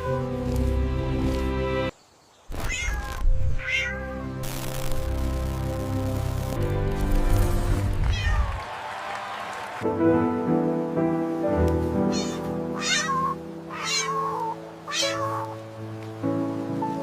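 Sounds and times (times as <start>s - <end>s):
background music: 0.0s - 1.9s, 3.4s - 8.2s, 9.6s - 17.0s
cat meowing: 2.5s - 4.2s, 8.0s - 8.6s, 12.1s - 15.6s.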